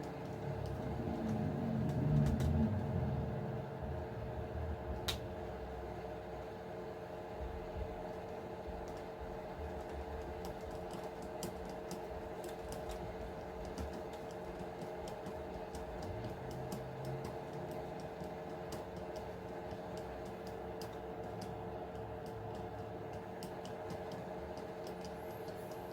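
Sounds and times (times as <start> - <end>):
background hum: 0.0 - 25.9
small tools clicking and tapping: 9.7 - 25.9.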